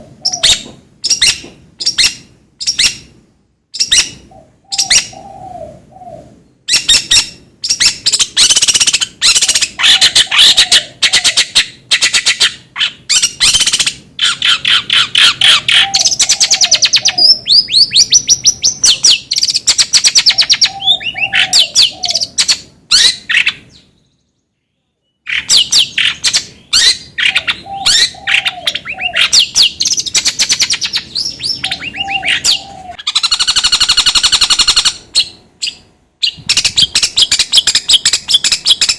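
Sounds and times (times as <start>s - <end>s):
bird chattering and trilling: 0.0s - 24.2s, 25.2s - 38.9s
low warbled bird phrase: 4.3s - 6.5s, 26.5s - 29.5s, 31.1s - 37.3s.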